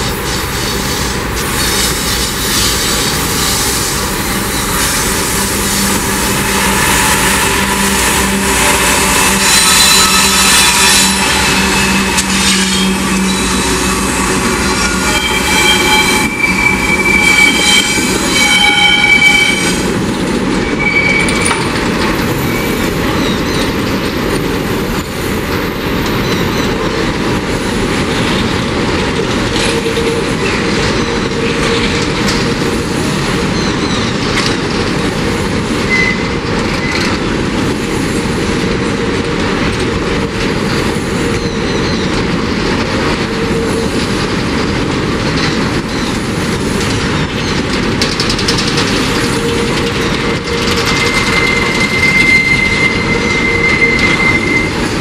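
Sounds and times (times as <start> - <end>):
steel wheels rumbling: 0.0 - 55.0
high wheel squeal: 1.6 - 20.0, 20.6 - 21.7, 22.3 - 23.9, 35.9 - 37.2, 47.1 - 55.0.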